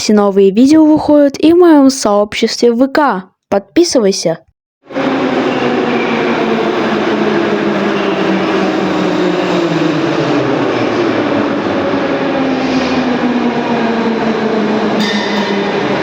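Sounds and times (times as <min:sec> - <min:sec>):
train traction motors whining: 0:04.9 - 0:16.0.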